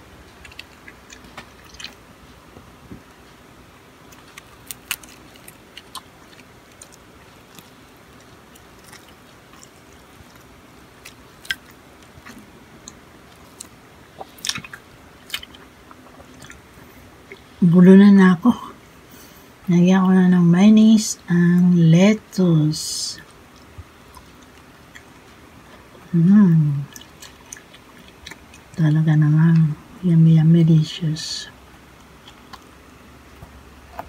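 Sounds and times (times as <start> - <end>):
person chewing: 0.1 - 2.4, 4.0 - 17.6, 23.2 - 29.8, 31.9 - 34.0.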